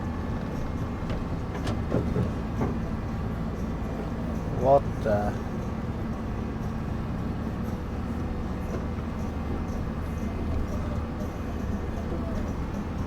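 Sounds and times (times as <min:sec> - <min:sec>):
truck engine rumble from cab: 0:00.0 - 0:13.0.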